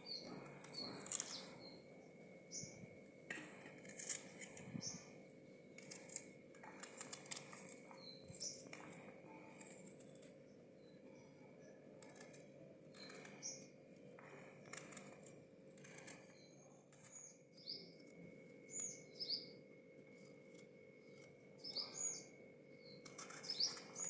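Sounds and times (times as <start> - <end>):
birds chirping: 0.0 - 2.9, 4.0 - 5.2, 5.8 - 11.8, 12.9 - 15.1, 16.1 - 18.1, 18.7 - 19.6, 21.0 - 24.0
knife cutting vegetables: 0.6 - 1.5, 3.6 - 4.8.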